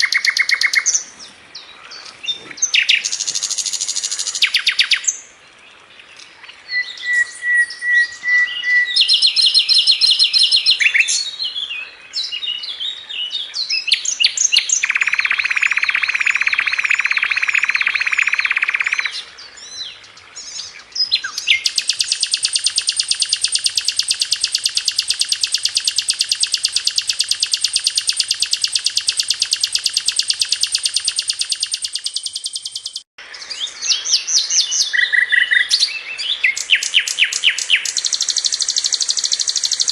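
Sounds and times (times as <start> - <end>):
bird chirps and whistles: 0.0 - 1.0, 2.7 - 5.2, 6.7 - 11.3, 13.8 - 19.2, 21.2 - 33.1, 33.9 - 39.9
long rapid bird trill: 0.0 - 1.1, 7.0 - 11.1, 14.6 - 19.2, 21.5 - 33.1, 36.4 - 39.9.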